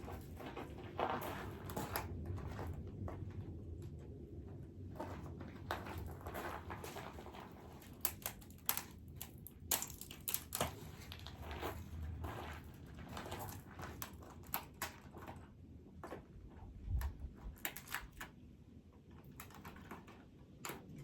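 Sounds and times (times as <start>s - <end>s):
dry wood crackling and snapping: 5.1s - 21.0s.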